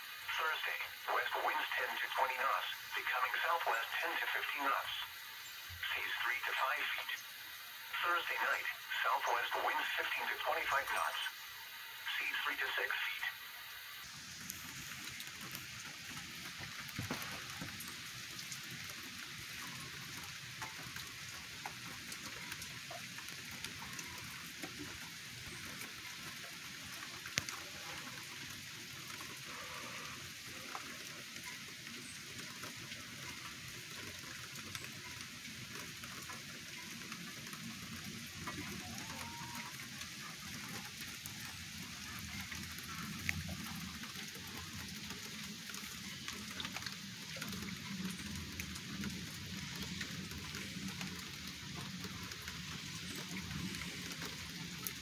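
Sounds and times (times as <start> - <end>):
rain pattering: 0.0 - 55.0
loud drip ticks: 14.3 - 55.0.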